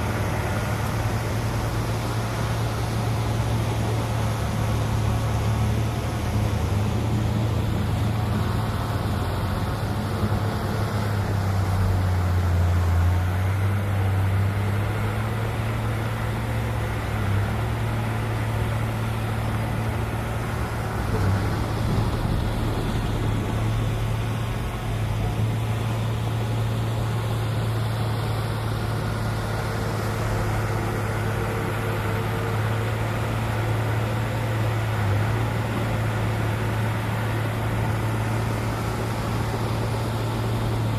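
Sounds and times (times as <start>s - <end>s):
heavy diesel machinery hum: 0.0s - 40.9s.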